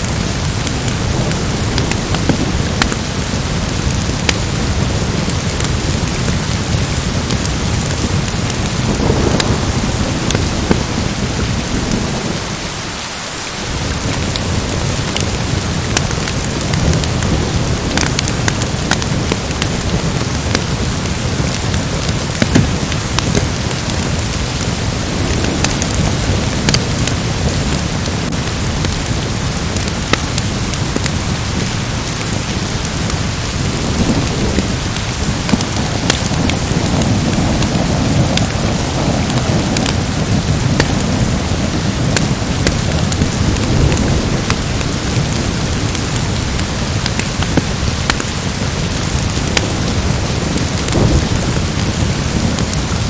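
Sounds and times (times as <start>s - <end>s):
sharp crackles and ticks: 0.0s - 12.4s, 13.8s - 53.0s
steady rain falling: 0.0s - 53.0s
low rumble: 7.0s - 12.7s.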